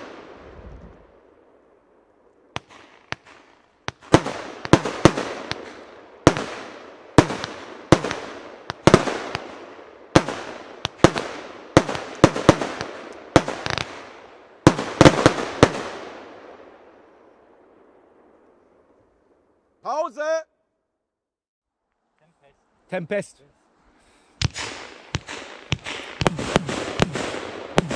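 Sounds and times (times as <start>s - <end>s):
fireworks bangs: 2.5s - 16.6s, 24.4s - 27.9s.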